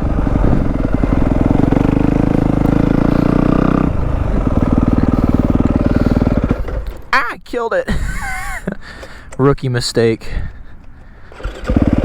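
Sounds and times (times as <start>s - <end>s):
motorcycle engine revving: 0.0s - 7.1s, 11.3s - 12.0s.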